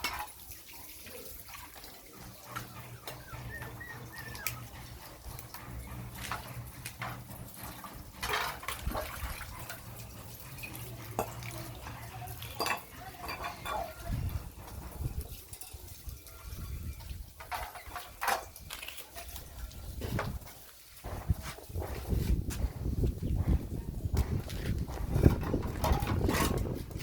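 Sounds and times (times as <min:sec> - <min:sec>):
dish clicking and knocking: 0:02.5 - 0:14.1
puppy chirp: 0:02.9 - 0:04.7.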